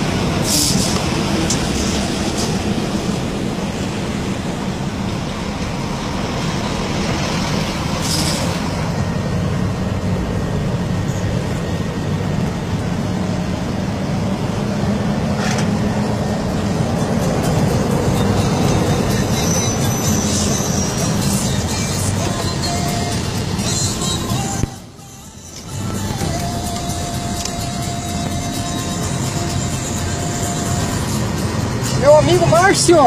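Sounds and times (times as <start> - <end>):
road noise: 0.0 - 33.0
truck diesel engine: 0.0 - 33.0
air brake hisses: 0.4 - 1.0, 8.0 - 8.7.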